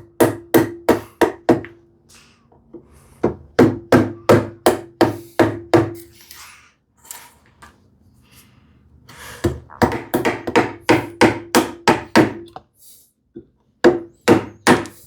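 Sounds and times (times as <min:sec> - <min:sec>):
mallet striking chisel into wood: 0:00.0 - 0:01.8, 0:09.8 - 0:12.6, 0:13.8 - 0:15.0.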